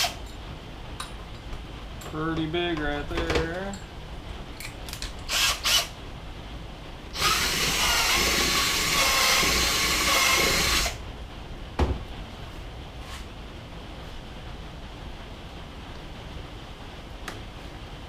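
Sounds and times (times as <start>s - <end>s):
electric drill boring: 5.3s - 6.0s, 7.2s - 11.0s.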